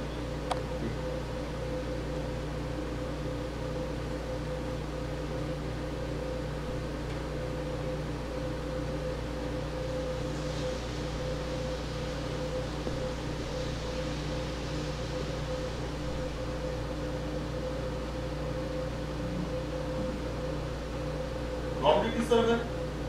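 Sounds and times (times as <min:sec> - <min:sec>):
steady mechanical hum: 0:00.0 - 0:23.0
low drone: 0:07.8 - 0:23.0
even hiss: 0:10.1 - 0:17.1.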